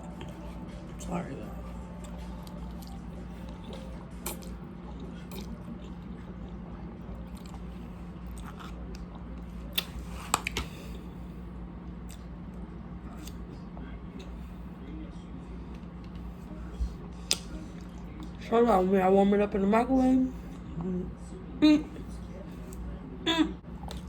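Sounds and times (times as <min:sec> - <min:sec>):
person chewing food: 0:00.0 - 0:01.0, 0:01.6 - 0:11.1, 0:11.9 - 0:14.4, 0:23.7 - 0:24.0
low hum: 0:00.0 - 0:24.0.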